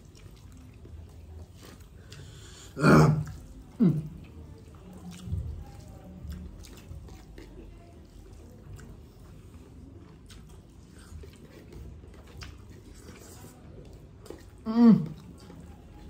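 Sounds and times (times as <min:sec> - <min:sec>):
person eating noodles: 0:00.0 - 0:05.2.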